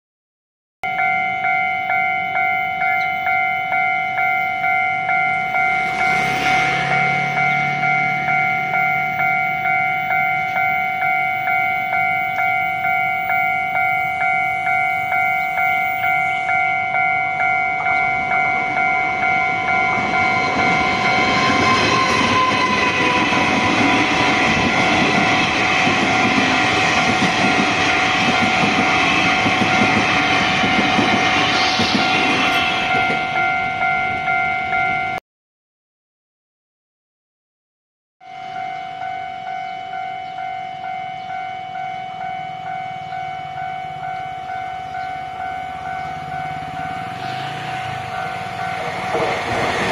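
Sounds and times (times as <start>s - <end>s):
level crossing warning bell: 0.8s - 35.2s, 38.2s - 49.9s
train passing: 0.8s - 35.2s, 38.3s - 49.9s.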